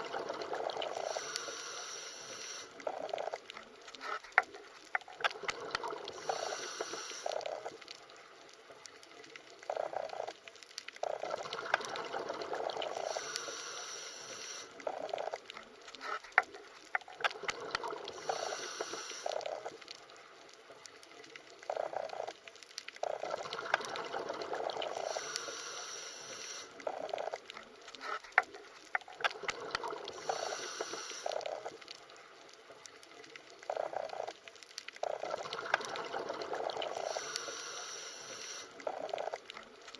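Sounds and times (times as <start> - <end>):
underwater bubbling and gurgling: 0.0 - 39.9.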